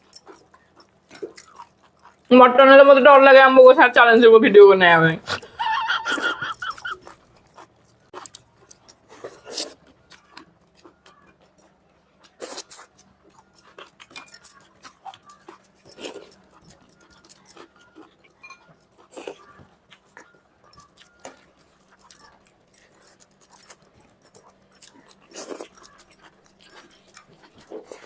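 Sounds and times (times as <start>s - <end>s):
chewing: 0.0s - 2.3s, 5.2s - 28.0s
lip-smacking: 5.2s - 7.2s.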